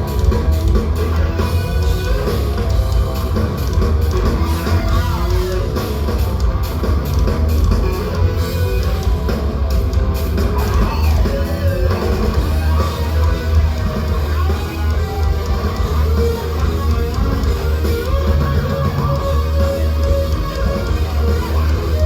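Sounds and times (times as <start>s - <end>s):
drum kit: 0.0s - 22.0s
electric guitar: 0.0s - 22.0s
heavy metal band playing live: 0.0s - 22.0s.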